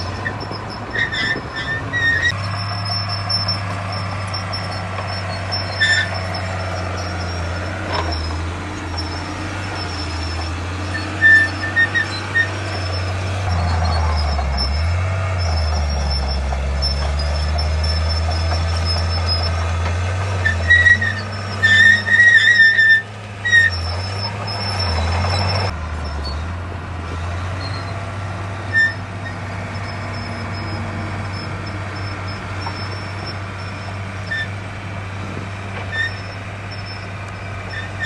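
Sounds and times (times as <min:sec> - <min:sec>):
high-pitched squeals: 0:00.0 - 0:19.8, 0:20.4 - 0:26.6, 0:35.9 - 0:38.0
heavy machinery diesel engine: 0:00.0 - 0:38.0.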